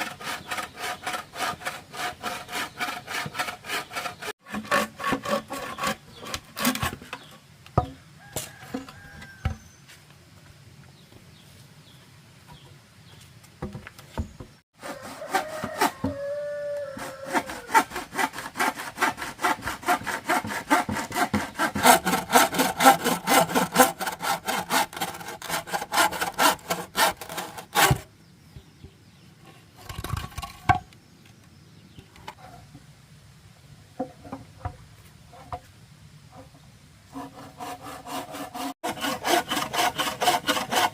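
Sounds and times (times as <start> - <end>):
hand saw cutting bamboo: 0.0 - 7.3, 14.8 - 28.1, 37.1 - 40.9.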